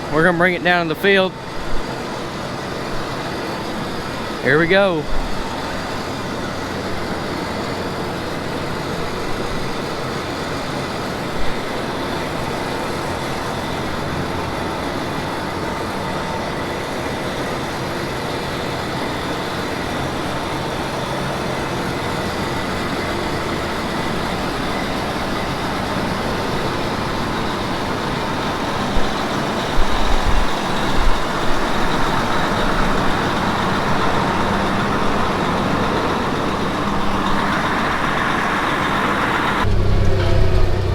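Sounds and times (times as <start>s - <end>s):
combine harvester engine drone: 0.0s - 40.9s
constant whine: 0.0s - 40.9s
low thuds: 39.6s - 40.9s.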